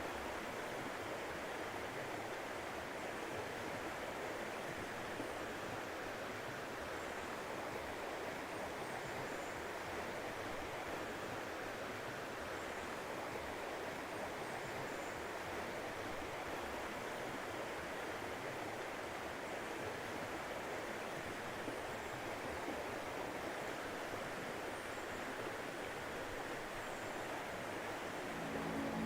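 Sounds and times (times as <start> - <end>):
running water rushing: 25.5 - 29.0.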